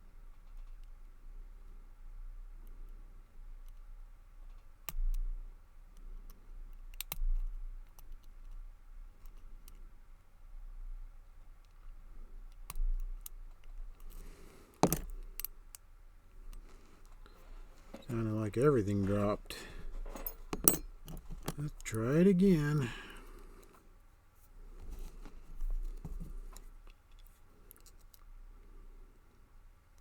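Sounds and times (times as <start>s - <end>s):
clatter of lock pins dropping: 14.8s - 15.2s, 20.0s - 21.6s.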